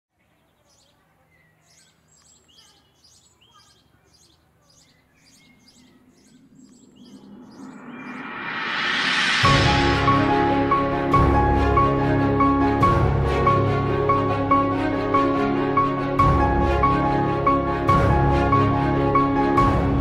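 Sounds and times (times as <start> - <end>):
bird chirping: 0.1 - 9.4
whistled bird notes: 0.3 - 8.7
whooshing: 6.0 - 11.2.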